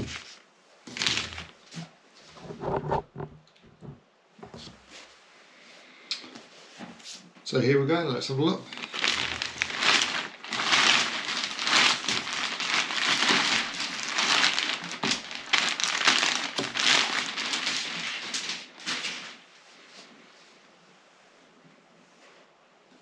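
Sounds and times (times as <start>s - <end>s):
packaging crinkling: 0.0s - 1.6s, 8.6s - 19.4s.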